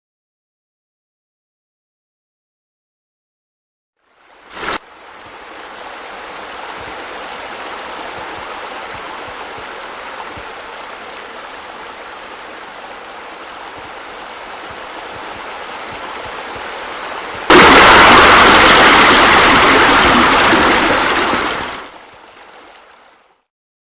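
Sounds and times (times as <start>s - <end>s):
loud rush of water: 4.0s - 23.4s
waterfall rushing: 4.3s - 23.1s.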